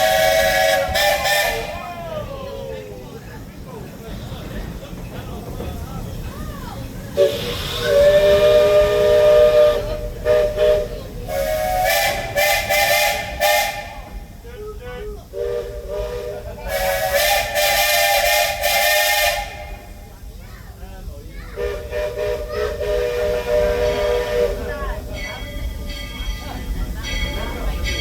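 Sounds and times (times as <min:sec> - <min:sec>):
hiss of escaping steam: 0:00.0 - 0:01.8, 0:02.9 - 0:20.8, 0:21.6 - 0:28.0
steam locomotive chime whistle: 0:00.0 - 0:01.8, 0:07.2 - 0:14.4, 0:15.3 - 0:20.0, 0:21.6 - 0:28.0.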